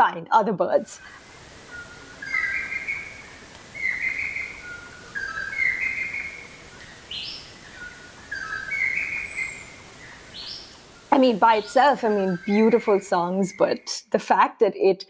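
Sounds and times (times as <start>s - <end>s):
bird singing whistled phrases: 1.7s - 3.2s, 3.8s - 10.7s.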